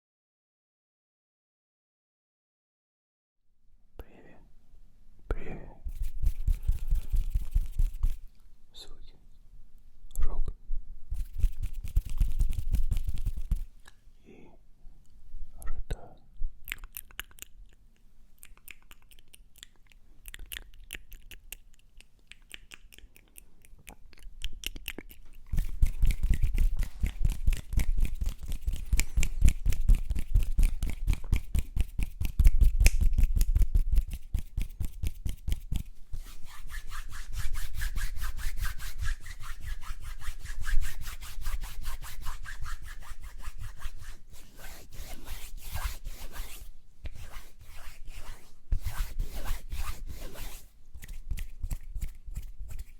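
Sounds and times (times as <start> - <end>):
rubbing and scratching strokes: 5.8 - 8.4, 11.1 - 13.9, 18.4 - 52.9
soft mouth clicks: 12.2 - 14.1, 15.9 - 35.9, 51.0 - 52.9.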